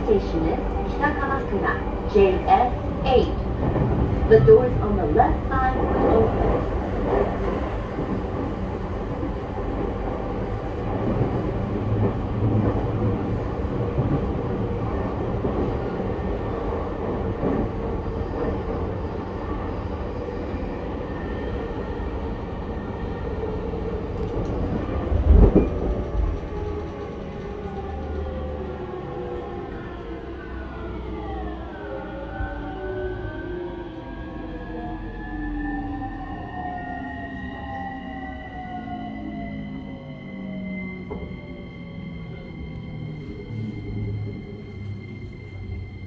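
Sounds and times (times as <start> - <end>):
train wheels rumbling on rails: 0.0 - 33.8, 34.4 - 46.0.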